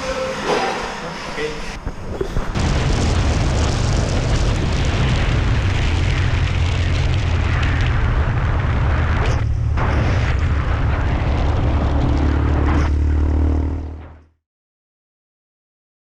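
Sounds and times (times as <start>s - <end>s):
vehicle noise: 3.8s - 14.4s.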